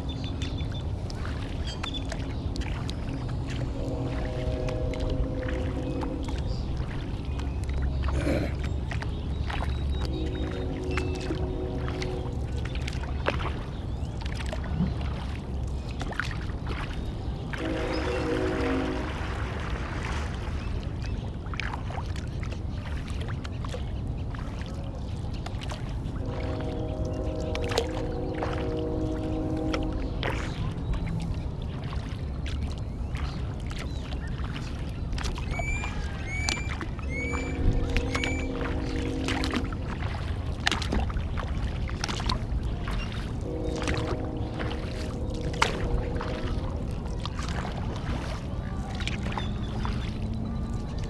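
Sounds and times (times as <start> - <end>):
paddle splashing water: 0.0 - 51.0
steady low rumble: 0.0 - 51.0
pitched drone: 3.3 - 7.7, 9.6 - 13.7, 26.0 - 31.2, 37.0 - 40.3, 43.2 - 48.2.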